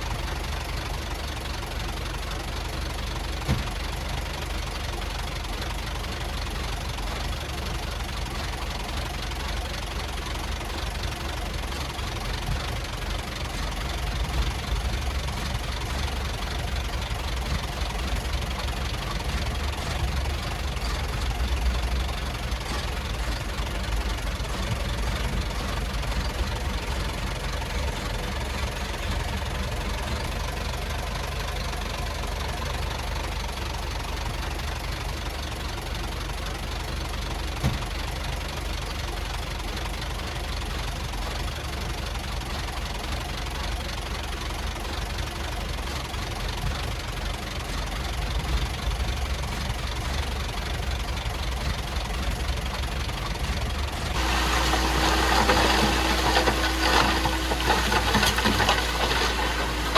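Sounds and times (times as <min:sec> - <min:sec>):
bulldozer diesel engine running: 0:00.0 - 0:59.9
engine whine: 0:48.1 - 0:59.9.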